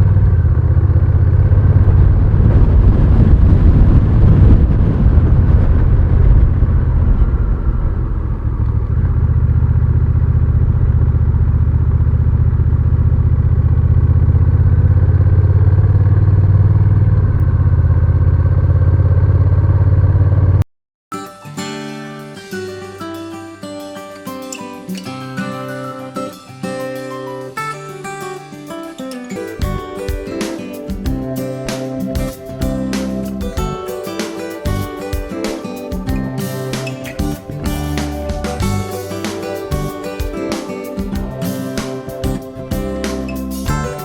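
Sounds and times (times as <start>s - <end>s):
rushing noise: 0.0s - 11.0s, 29.6s - 44.0s
motorcycle engine running: 0.0s - 20.6s, 37.2s - 39.1s.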